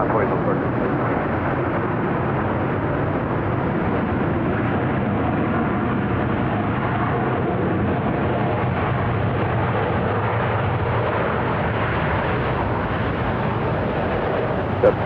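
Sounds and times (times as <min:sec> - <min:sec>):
jet engines rumbling: 0:00.0 - 0:06.9, 0:11.4 - 0:15.0.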